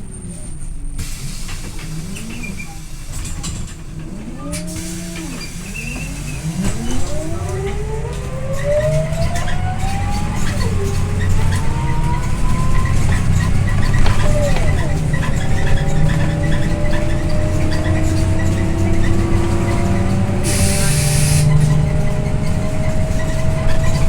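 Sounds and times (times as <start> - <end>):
bus engine humming: 0.0 - 24.0
drivetrain whine: 0.0 - 24.0.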